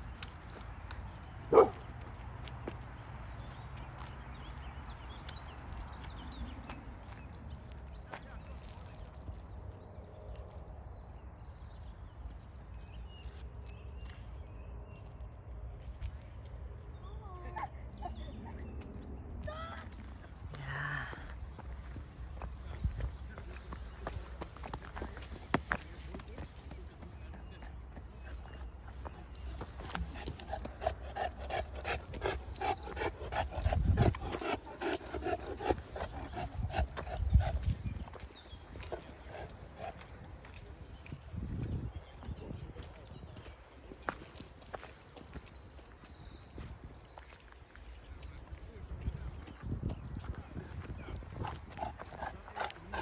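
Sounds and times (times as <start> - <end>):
dog panting: 29.6 - 40.8, 50.8 - 53.0.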